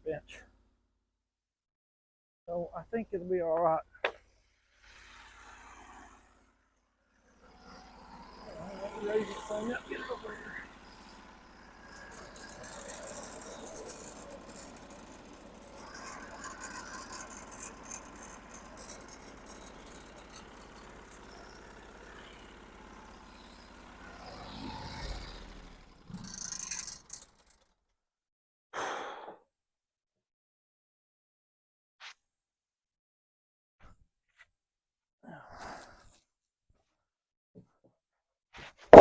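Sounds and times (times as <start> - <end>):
bandsaw mill rattling and clicking: 10.6 - 27.6.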